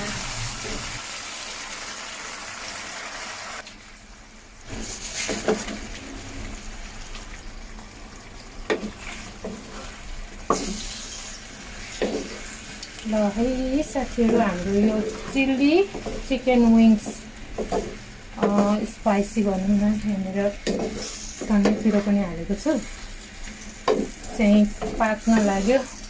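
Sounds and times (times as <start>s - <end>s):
sauce sizzling in a frying pan: 0.0s - 26.0s
utensil knocking against pan: 14.2s - 18.9s, 23.8s - 25.5s.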